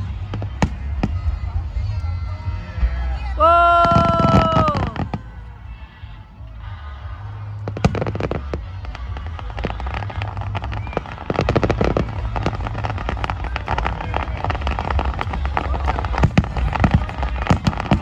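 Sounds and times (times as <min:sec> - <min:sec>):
fireworks bangs: 0:00.0 - 0:01.9, 0:03.8 - 0:05.2, 0:07.7 - 0:18.0
fireworks crackling pops: 0:00.0 - 0:02.0, 0:07.6 - 0:18.0
low rumble: 0:00.0 - 0:18.0.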